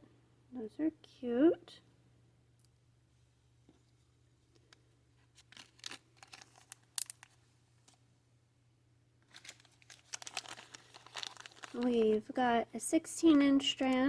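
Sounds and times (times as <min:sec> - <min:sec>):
packaging crinkling and rustling: 0:05.2 - 0:08.0, 0:09.2 - 0:12.4.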